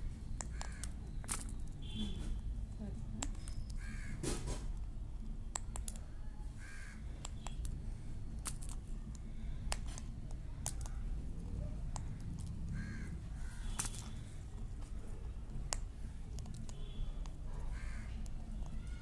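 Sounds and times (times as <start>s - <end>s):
sharp clicks: 0.4s - 1.7s, 4.7s - 6.1s, 7.2s - 7.8s, 8.4s - 11.0s, 11.9s - 12.8s, 15.4s - 17.4s
steady low rumble: 4.7s - 18.8s.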